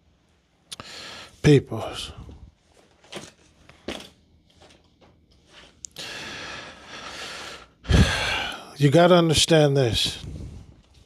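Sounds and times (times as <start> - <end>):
man breathing: 0.7 - 1.4, 5.8 - 8.8.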